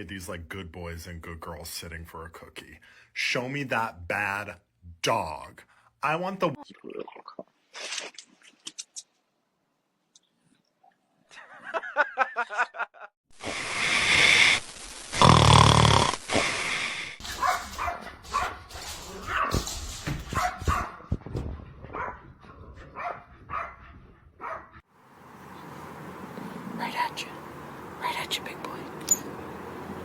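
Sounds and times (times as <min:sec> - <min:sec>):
dog barking and yapping: 0:17.2 - 0:24.8.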